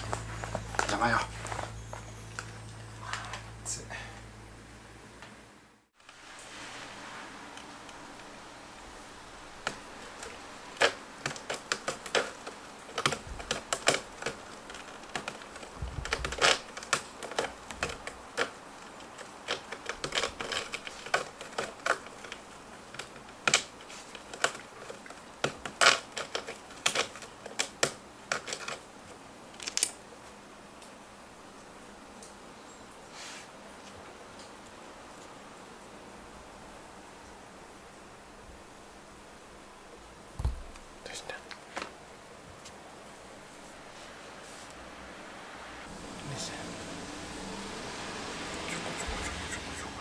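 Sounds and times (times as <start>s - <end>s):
irregular clicking and tapping: 9.6s - 28.8s
dull thump: 40.4s - 40.8s.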